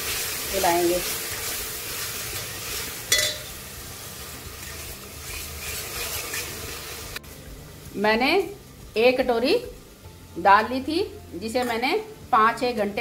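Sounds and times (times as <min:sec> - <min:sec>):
spatula stirring: 0:00.0 - 0:07.2
food sizzling in a pot: 0:00.0 - 0:13.0
spatula knocking on metal pot: 0:03.1 - 0:03.5.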